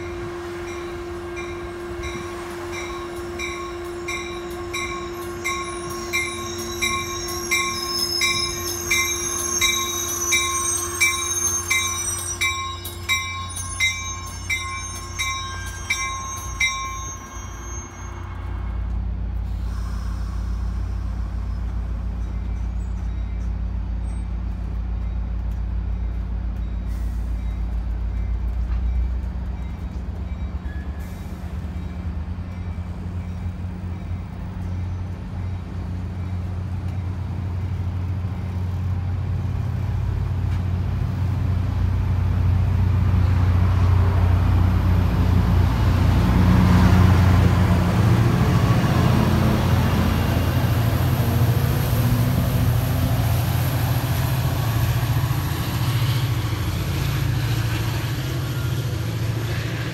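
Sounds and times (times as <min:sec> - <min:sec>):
train warning bell: 0:00.0 - 0:18.9
wheel squeal: 0:13.5 - 0:18.5.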